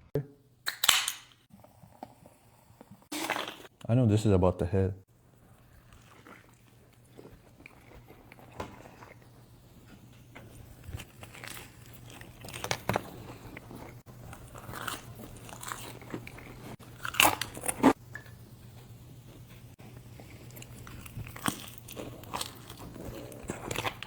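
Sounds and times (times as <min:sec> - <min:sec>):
person chewing crunchy food: 0:05.4 - 0:18.0, 0:19.8 - 0:24.0.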